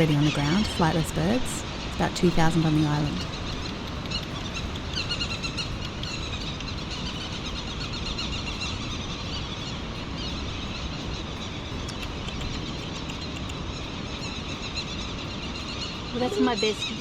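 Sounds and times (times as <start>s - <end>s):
birds chirping: 0.0s - 17.0s
low background rush: 0.0s - 17.0s.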